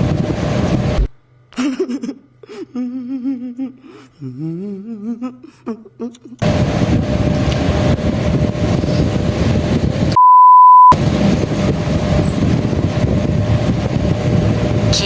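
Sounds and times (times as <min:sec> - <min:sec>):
loud noisy rumble: 0:00.0 - 0:01.2, 0:06.4 - 0:10.2, 0:11.0 - 0:15.0
faint steady hum: 0:00.0 - 0:10.1
censor bleep: 0:10.2 - 0:11.0.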